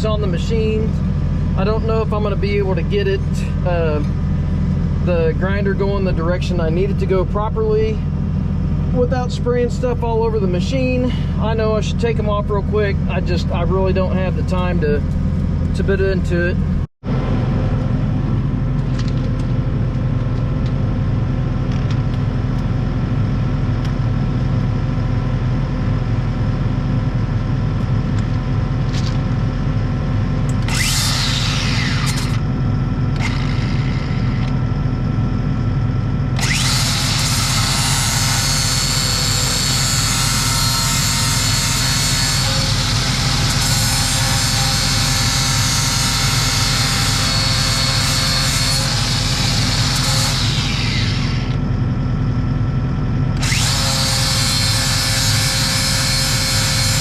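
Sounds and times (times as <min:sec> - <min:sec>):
engine hum: 0:00.0 - 0:39.8
grinder on steel blades: 0:30.6 - 0:32.4, 0:33.1 - 0:34.6, 0:36.4 - 0:51.6, 0:53.4 - 0:57.0.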